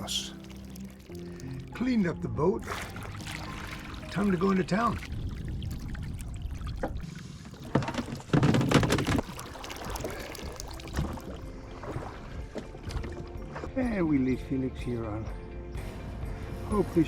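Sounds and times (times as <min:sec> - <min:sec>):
water sloshing against hull: 0:02.5 - 0:14.2.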